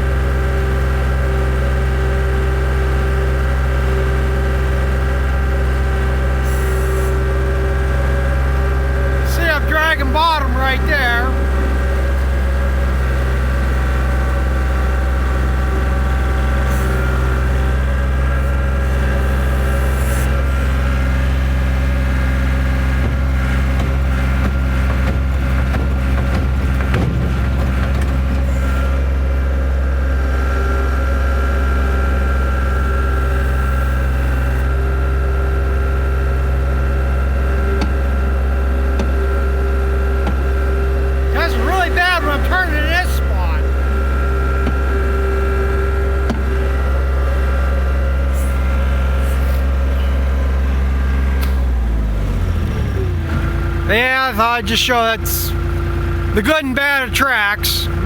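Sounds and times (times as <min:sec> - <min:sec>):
skid steer engine running: 0:00.0 - 0:58.0
tracks knocking and scraping: 0:23.8 - 0:28.4.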